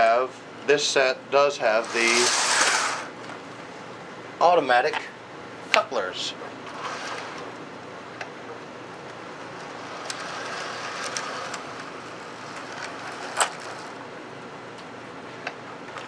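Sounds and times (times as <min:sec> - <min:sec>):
toy train motor and wheels: 0:01.7 - 0:03.2, 0:06.7 - 0:07.5, 0:09.6 - 0:14.0
sharp clicks of toy train: 0:01.8 - 0:03.1, 0:09.9 - 0:14.0.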